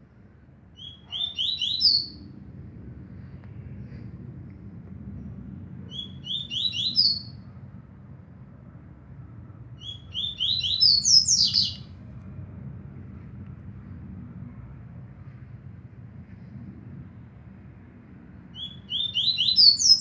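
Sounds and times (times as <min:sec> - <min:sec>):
bird singing sliding notes: 0:10.2 - 0:11.8.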